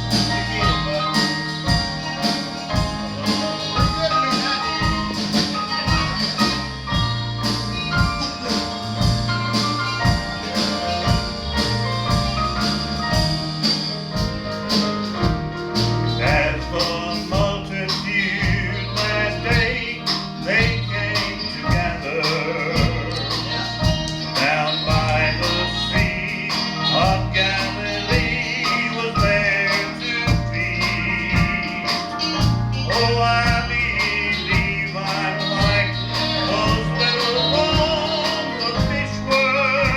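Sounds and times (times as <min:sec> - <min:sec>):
gospel music with bass and drums: 0:00.0 - 0:39.9
singing: 0:16.1 - 0:39.9.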